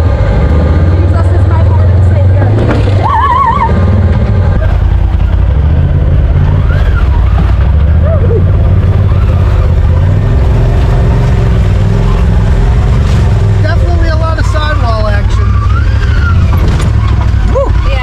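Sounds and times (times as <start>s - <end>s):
utility vehicle engine running: 0.0s - 18.0s.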